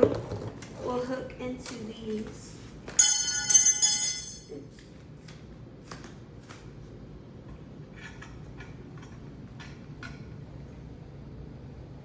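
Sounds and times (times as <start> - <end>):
metal parts clinking: 3.0 - 4.6.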